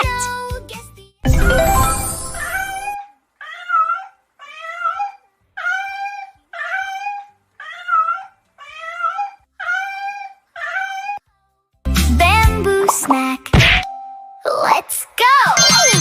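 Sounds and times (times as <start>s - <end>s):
animal meow-like cries: 3.4s - 11.2s.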